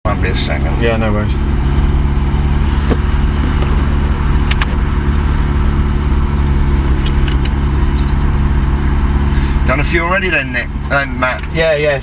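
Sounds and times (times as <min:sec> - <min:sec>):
car engine idling: 0:00.1 - 0:12.0.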